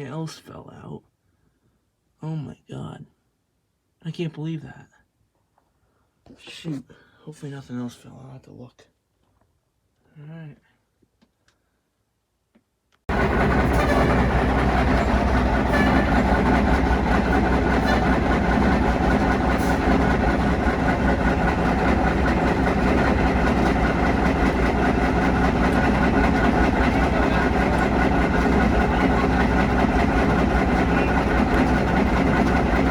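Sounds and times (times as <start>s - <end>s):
heavy engine droning: 13.1s - 32.9s.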